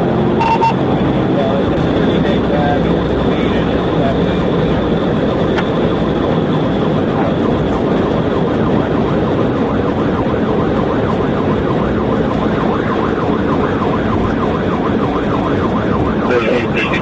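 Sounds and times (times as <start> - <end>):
engine and road noise: 0.0 - 17.0
police siren yelp: 0.0 - 17.0.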